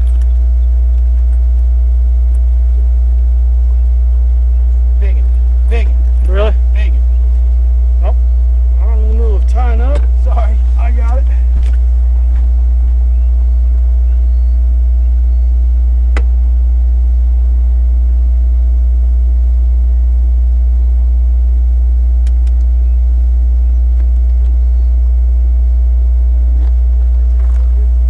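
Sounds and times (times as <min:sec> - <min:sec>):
loud steady low hum: 0:00.0 - 0:28.0
sharp click: 0:22.2 - 0:22.8.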